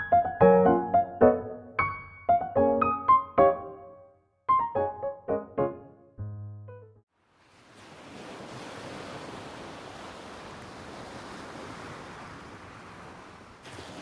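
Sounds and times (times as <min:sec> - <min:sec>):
piano note: 0:00.0 - 0:07.0.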